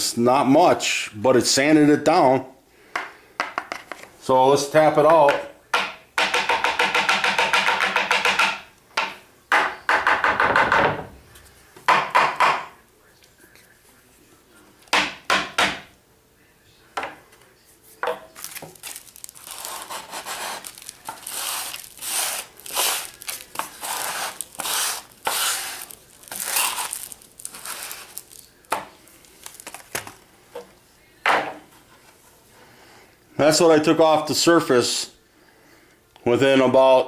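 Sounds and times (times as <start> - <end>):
sharp knocks: 5.1 - 11.2, 11.9 - 12.8
crinkly rustling and rubbing: 17.6 - 30.2.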